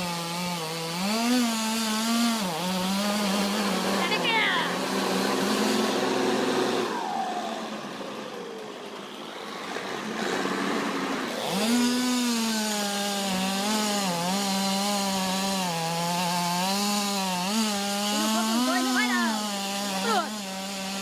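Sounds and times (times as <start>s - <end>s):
chainsaw revving and idling: 0.0s - 21.0s.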